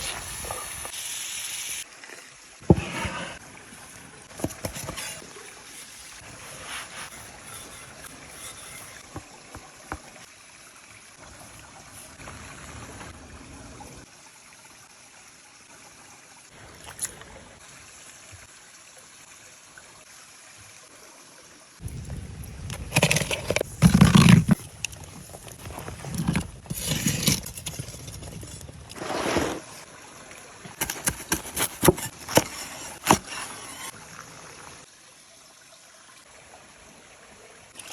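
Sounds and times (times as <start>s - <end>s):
stream trickling: 0.0s - 37.9s
handling and crunching noises: 4.3s - 10.2s, 21.9s - 29.8s, 30.7s - 33.9s.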